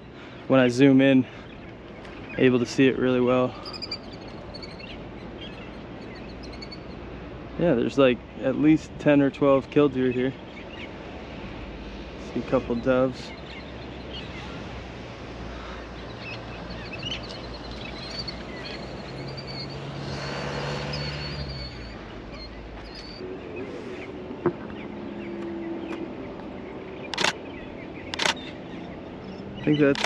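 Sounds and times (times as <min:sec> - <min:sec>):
bird chirps and trill: 0:03.5 - 0:07.0, 0:16.0 - 0:23.2
motor vehicle passing: 0:10.4 - 0:30.0.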